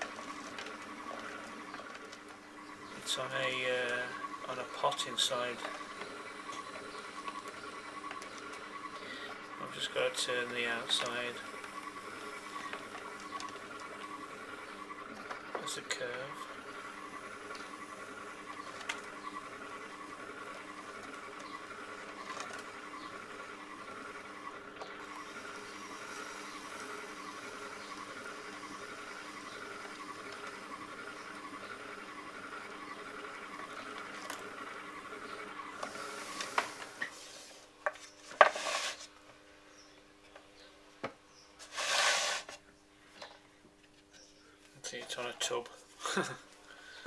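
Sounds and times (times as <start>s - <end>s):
potter's wheel humming: 0.0s - 40.4s, 41.6s - 42.6s
knocks and handling noises: 36.4s - 39.4s
tool scraping clay pot: 38.4s - 39.1s, 41.6s - 42.6s.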